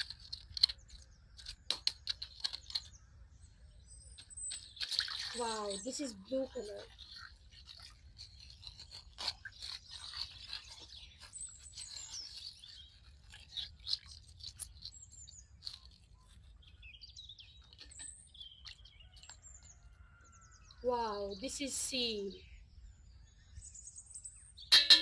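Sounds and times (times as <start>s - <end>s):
birds chirping: 0.0s - 25.0s
plastic bag crinkling and tearing: 4.3s - 16.8s.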